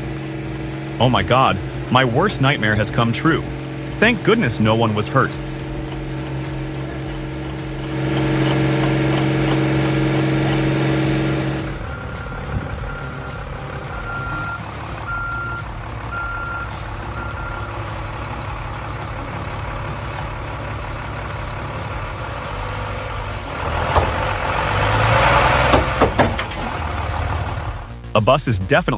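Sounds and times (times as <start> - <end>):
diesel engine running: 0.0 - 28.2
reversing alarm beeping: 7.8 - 18.0.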